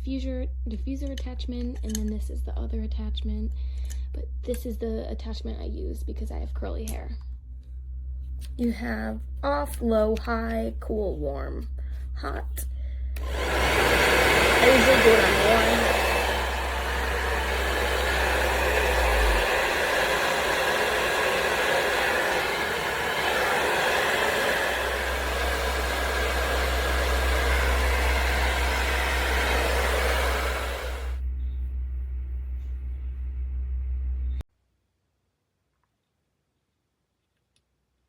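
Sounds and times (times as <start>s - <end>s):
hair dryer blowing air: 13.2s - 31.2s.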